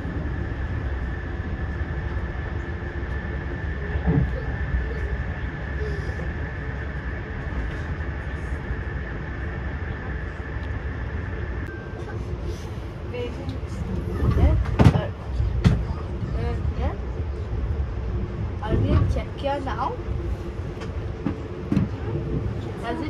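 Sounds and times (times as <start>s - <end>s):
high-pitched whine: 0.0s - 13.2s
train rumble: 0.0s - 23.0s.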